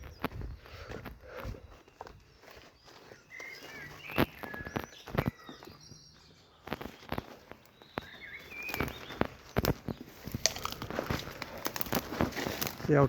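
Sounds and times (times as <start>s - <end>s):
short bird calls: 0.0s - 9.7s
footsteps on a path: 0.0s - 13.0s.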